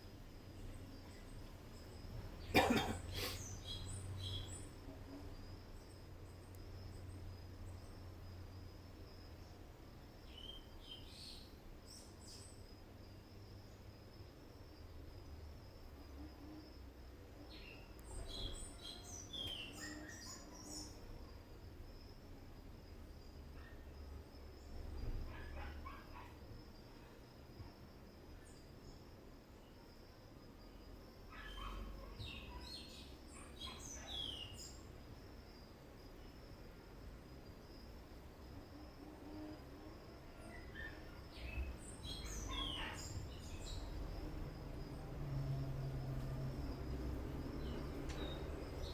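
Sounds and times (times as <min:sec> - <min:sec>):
birds chirping: 0:31.4 - 0:34.8, 0:40.8 - 0:44.1.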